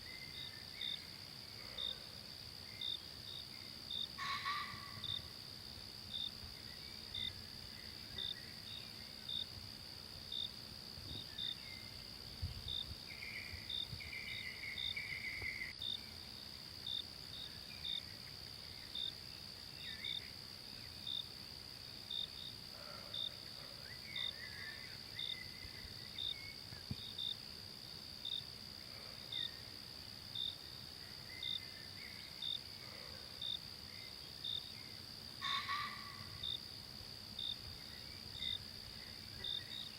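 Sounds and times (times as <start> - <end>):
cricket chirping: 0.0 - 39.9
high-pitched insect drone: 2.8 - 9.6.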